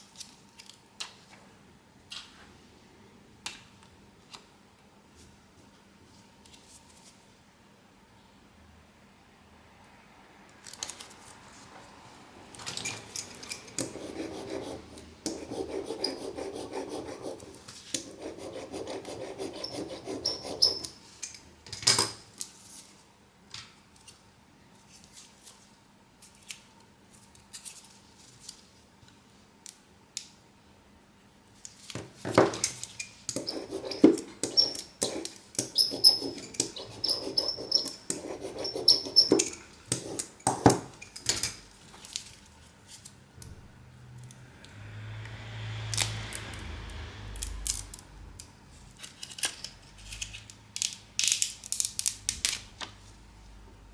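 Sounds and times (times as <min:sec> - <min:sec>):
scraping and rubbing: 0:13.6 - 0:20.9, 0:33.3 - 0:41.1.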